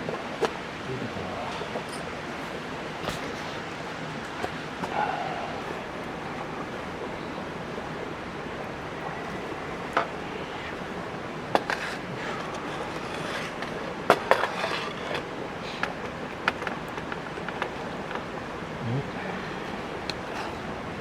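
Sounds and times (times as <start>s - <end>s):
campfire burning: 0.0s - 21.0s
fire pops and crackles: 11.4s - 18.8s.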